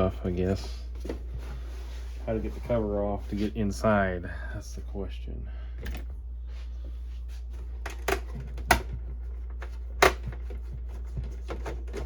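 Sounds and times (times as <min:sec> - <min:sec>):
dehumidifier humming: 0:00.0 - 0:12.0
plastic printer casing handled: 0:07.9 - 0:12.0.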